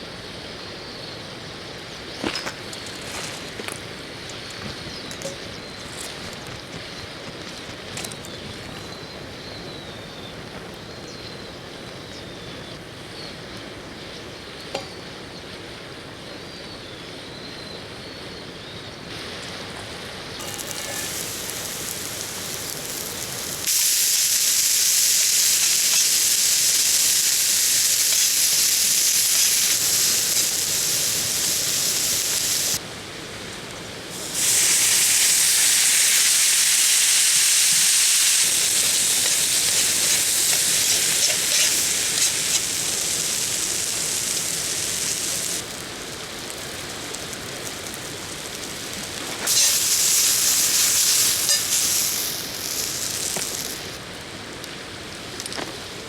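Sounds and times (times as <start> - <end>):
food sizzling in a pan: 20.3 - 32.8, 34.1 - 54.0.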